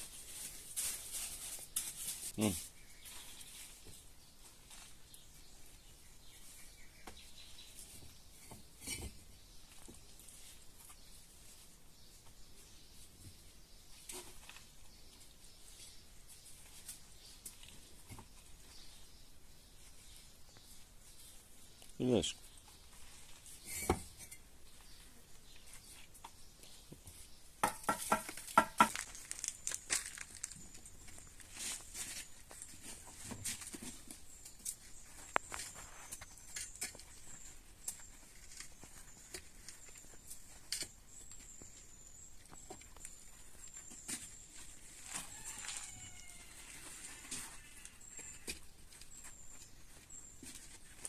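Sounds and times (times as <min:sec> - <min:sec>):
crinkling handling noise: 0:00.0 - 0:05.4, 0:28.3 - 0:51.0.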